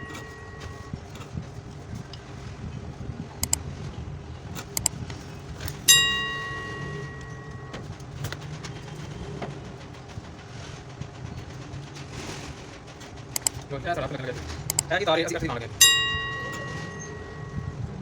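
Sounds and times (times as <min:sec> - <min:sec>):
ringing metallic strike: 0:00.0 - 0:01.0, 0:05.9 - 0:08.0, 0:15.8 - 0:18.0
steady low hum: 0:00.0 - 0:18.0
handling clicks: 0:14.6 - 0:15.0.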